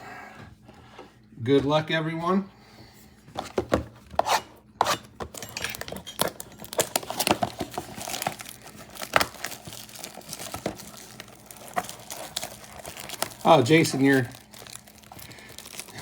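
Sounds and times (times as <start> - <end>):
cardboard tearing and crinkling: 4.9 - 16.0.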